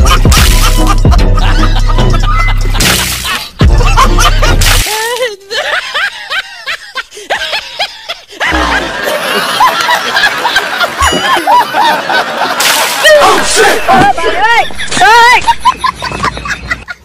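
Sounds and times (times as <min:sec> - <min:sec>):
burst of music: 0:00.0 - 0:04.8.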